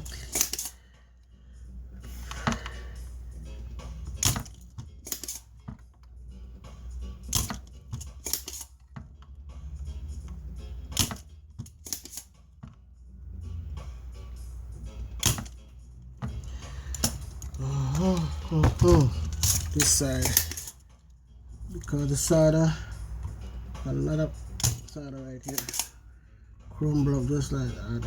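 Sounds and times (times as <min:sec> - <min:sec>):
hand tools clicking and tapping: 0:00.0 - 0:00.8, 0:02.2 - 0:02.8, 0:04.0 - 0:06.2, 0:07.2 - 0:09.4, 0:10.2 - 0:12.8, 0:15.1 - 0:22.4, 0:24.5 - 0:26.0.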